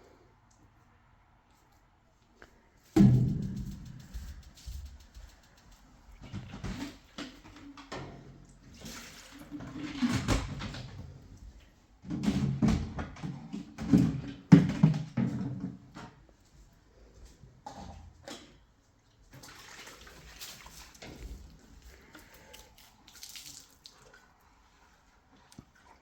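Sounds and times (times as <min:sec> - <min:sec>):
water splashing: 0:19.4 - 0:24.3.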